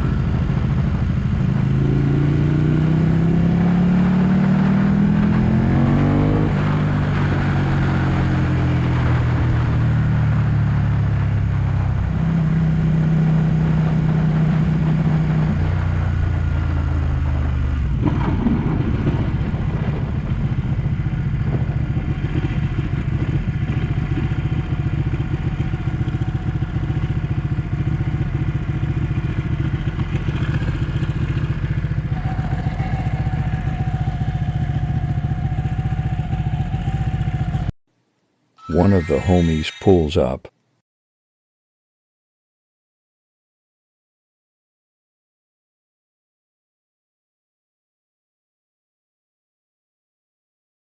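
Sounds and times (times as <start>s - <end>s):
motorcycle engine slowing to idle: 19.9s - 37.7s.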